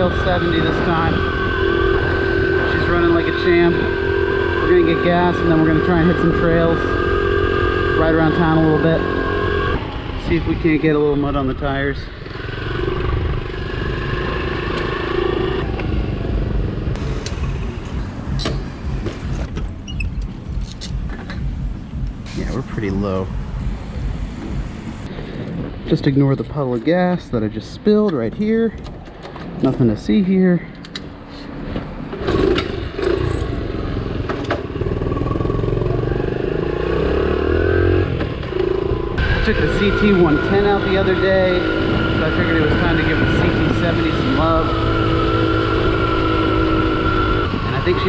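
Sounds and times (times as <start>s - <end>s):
motorcycle engine revving: 0.0s - 25.2s, 32.2s - 48.0s
low rumble: 14.7s - 26.2s
small motorcycle engine running: 22.3s - 25.1s, 32.3s - 48.0s.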